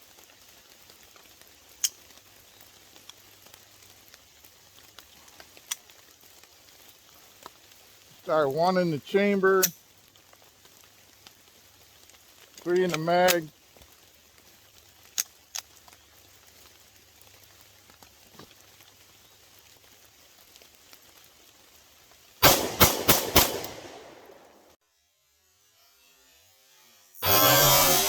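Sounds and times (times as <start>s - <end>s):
pistol shots: 22.4s - 24.6s.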